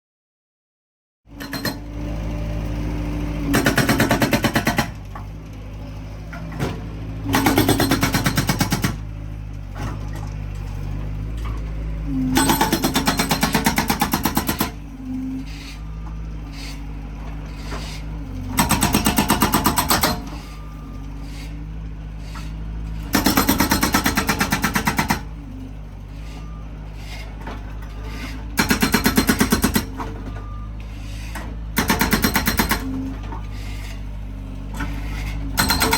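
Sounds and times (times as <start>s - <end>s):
skid steer engine running: 1.3s - 35.9s
hydraulic breaker hammering: 3.5s - 5.1s, 7.3s - 9.1s, 12.3s - 14.8s, 18.5s - 20.4s, 23.0s - 25.3s, 28.6s - 30.3s, 31.4s - 33.2s, 35.5s - 35.9s.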